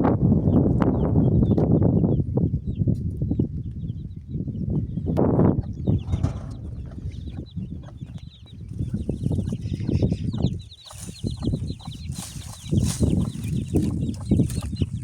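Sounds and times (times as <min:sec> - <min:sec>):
high chirps or peeps: 0:00.5 - 0:15.0
chickens clucking: 0:05.0 - 0:15.0.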